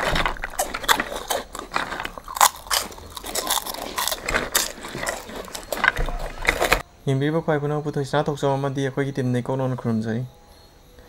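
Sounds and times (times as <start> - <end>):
people crunching snacks: 0.0 - 6.8.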